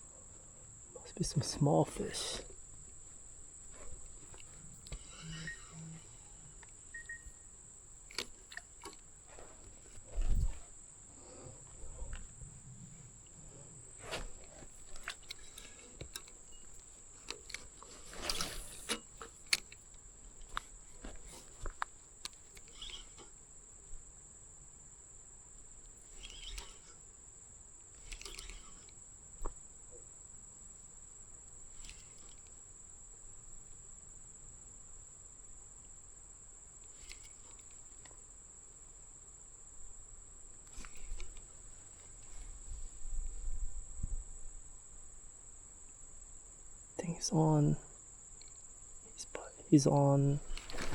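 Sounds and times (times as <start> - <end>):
high-pitched insect drone: 1.0 - 7.8, 26.0 - 29.7
small clicks and knocks: 8.0 - 10.6, 14.1 - 23.4, 27.8 - 29.6, 31.7 - 32.6, 36.8 - 38.2
brief rustles: 13.9 - 23.3, 28.0 - 29.5, 40.6 - 43.7, 50.4 - 50.9.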